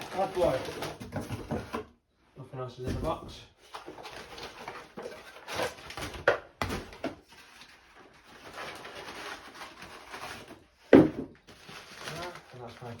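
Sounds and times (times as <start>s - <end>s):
cardboard rustling: 0.0s - 1.9s, 3.6s - 13.0s
knocks on cardboard: 10.9s - 11.4s.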